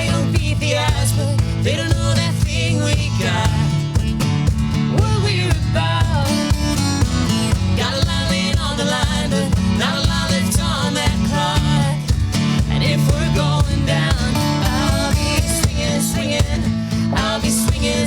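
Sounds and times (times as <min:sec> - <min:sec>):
strummed acoustic guitar: 0:00.0 - 0:18.0
person singing: 0:12.7 - 0:18.0.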